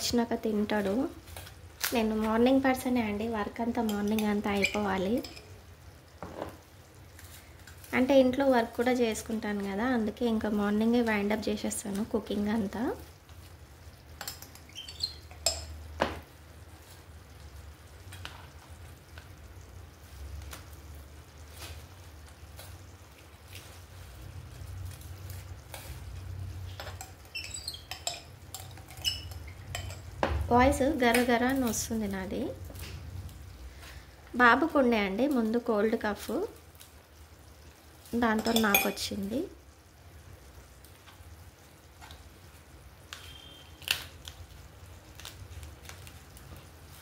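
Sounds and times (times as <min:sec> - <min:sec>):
low kitchen hum: 0:00.0 - 0:47.0
metal spoon scraping a pot: 0:03.8 - 0:05.5, 0:26.7 - 0:30.1
kitchen utensils clicking: 0:26.8 - 0:30.0.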